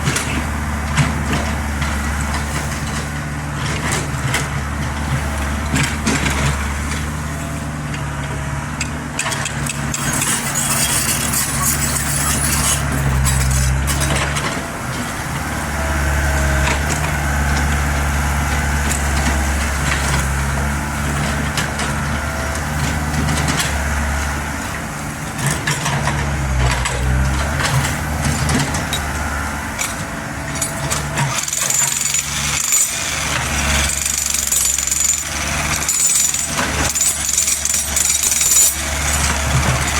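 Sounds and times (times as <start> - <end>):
excavator engine running: 0.0 - 39.9
hydraulic whine: 9.5 - 39.9
knocks and scrapes: 9.9 - 14.5.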